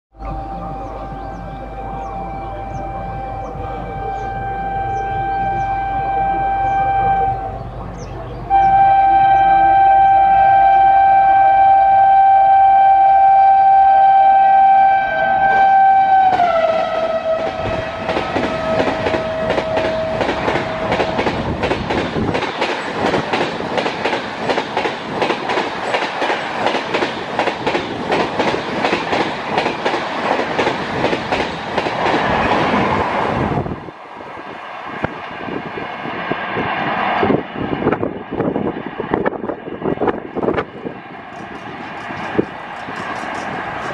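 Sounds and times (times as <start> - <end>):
train horn: 0.2 - 7.9, 8.5 - 21.7
wheels clicking over rail joints: 17.5 - 32.9.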